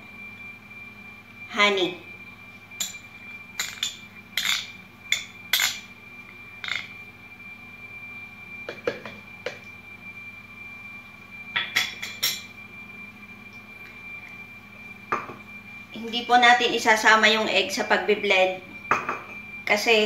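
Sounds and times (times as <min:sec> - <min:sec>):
utensils clinking against bowls: 0:02.8 - 0:05.9, 0:06.6 - 0:07.0, 0:11.6 - 0:12.5.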